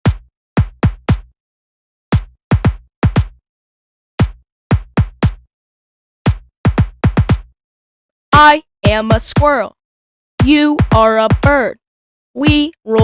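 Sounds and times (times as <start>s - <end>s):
drum machine kick drum: 0.0s - 1.3s, 2.1s - 3.4s, 4.2s - 5.5s, 6.3s - 7.6s, 8.4s - 9.7s, 10.4s - 11.7s, 12.4s - 13.0s.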